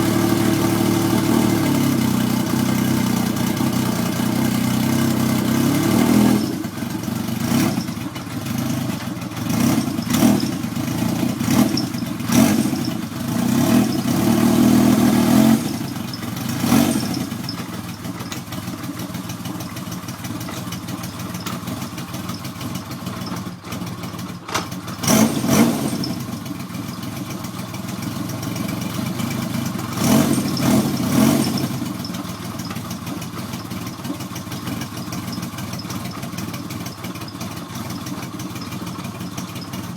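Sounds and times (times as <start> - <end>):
motorcycle engine revving and idling: 0.0 - 39.9.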